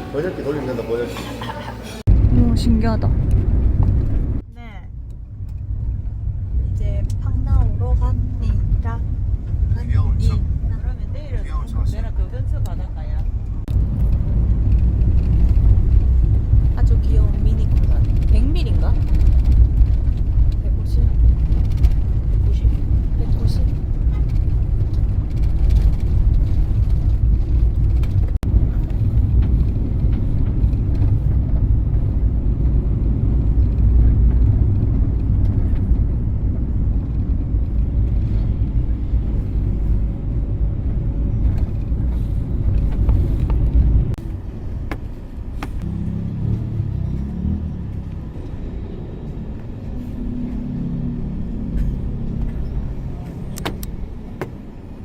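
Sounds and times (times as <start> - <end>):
vehicle engine and road rumble: 0.0 - 55.0.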